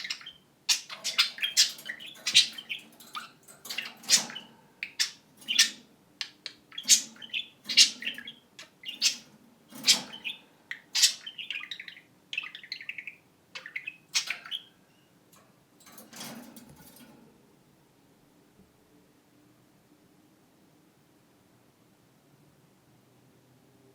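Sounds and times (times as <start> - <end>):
budgerigars chirping: 0.0 - 14.8.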